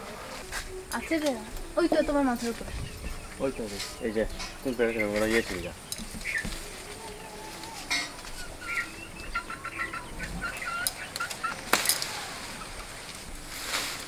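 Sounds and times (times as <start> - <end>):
branch cracking: 10.6 - 14.0.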